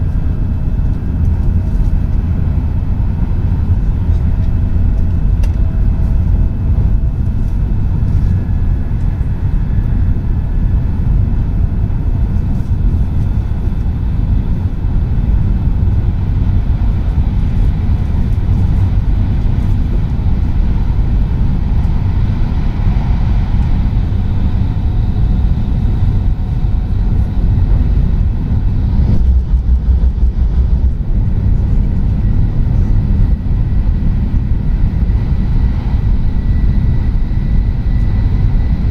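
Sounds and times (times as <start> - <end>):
air rushing past train: 0.0 - 38.9
train wheels on rail: 16.3 - 36.5.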